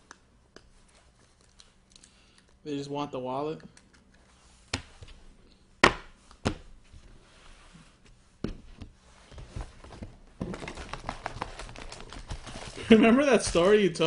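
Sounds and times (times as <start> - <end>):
card packs rustling: 9.3 - 14.0.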